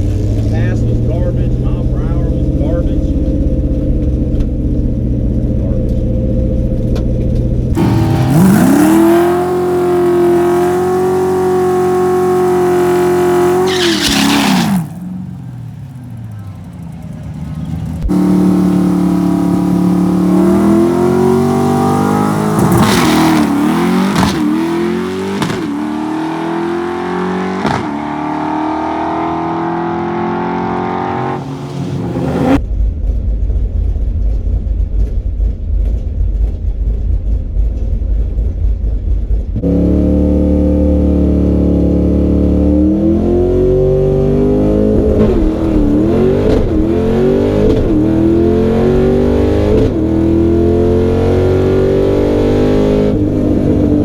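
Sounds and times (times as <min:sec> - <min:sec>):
deep low rumble: 0:00.0 - 0:07.8, 0:32.2 - 0:39.6
car engine revving: 0:00.0 - 0:32.6, 0:39.6 - 0:54.0.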